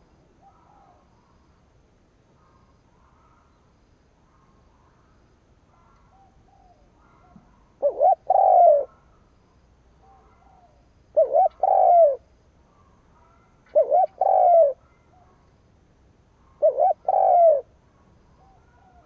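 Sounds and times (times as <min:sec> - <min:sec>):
dove cooing: 0:05.7 - 0:09.2, 0:10.0 - 0:12.3, 0:13.2 - 0:15.3, 0:16.4 - 0:17.8, 0:18.4 - 0:19.0.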